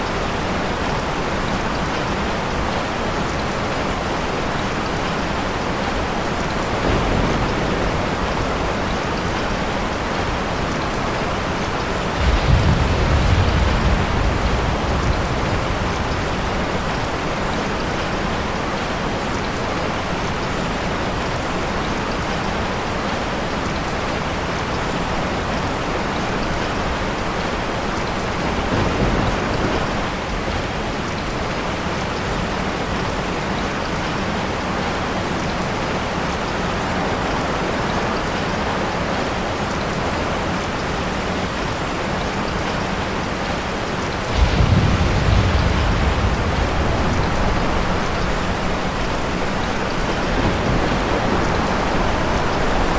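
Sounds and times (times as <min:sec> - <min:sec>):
steady rain: 0:00.0 - 0:52.9
thunder rumble: 0:05.3 - 0:22.9, 0:23.7 - 0:30.1, 0:44.1 - 0:52.9.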